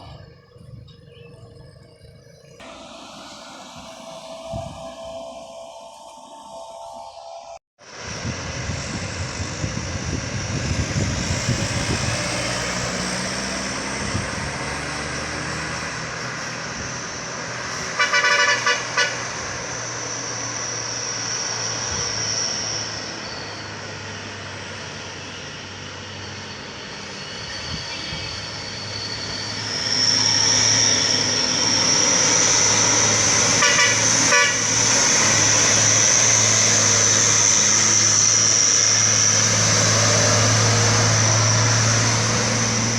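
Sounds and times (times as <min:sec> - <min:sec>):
low engine hum: 0:00.0 - 0:18.0, 0:19.5 - 0:42.9
train wheels squealing: 0:10.4 - 0:42.9
horn blasts: 0:17.9 - 0:19.5, 0:32.8 - 0:35.8.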